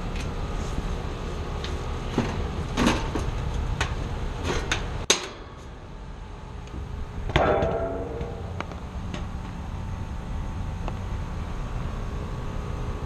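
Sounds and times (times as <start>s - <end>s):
steady low rumble: 3.4s - 13.0s.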